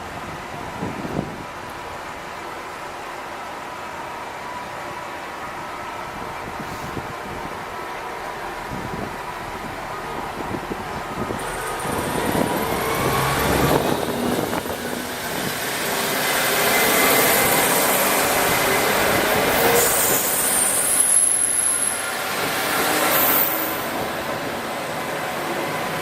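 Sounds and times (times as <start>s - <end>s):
diesel train moving on track: 0.0s - 26.0s
wheel and rail noise: 0.4s - 26.0s
high wheel squeals: 16.6s - 22.3s, 22.9s - 24.0s.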